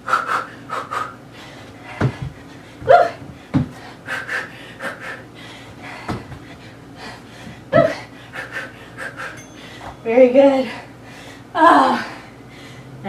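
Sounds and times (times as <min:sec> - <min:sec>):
person breathing hard: 0:00.0 - 0:10.0, 0:10.6 - 0:13.0
dull thuds: 0:01.9 - 0:03.8, 0:06.0 - 0:06.5.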